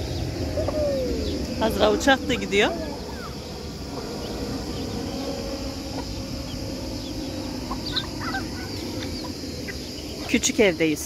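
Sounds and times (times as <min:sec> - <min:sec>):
airplane drone overhead: 0:00.0 - 0:11.0
farmyard fowl calling: 0:05.8 - 0:10.3.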